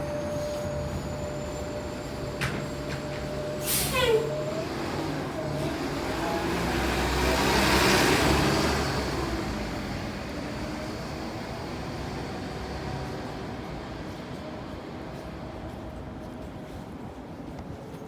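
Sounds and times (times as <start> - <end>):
vehicle passing by: 5.5 - 10.3.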